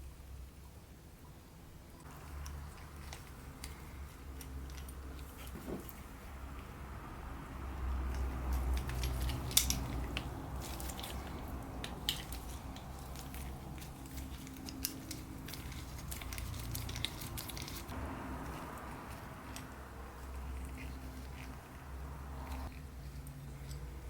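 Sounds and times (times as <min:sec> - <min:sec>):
hand tools clicking and tapping: 0:08.0 - 0:21.7.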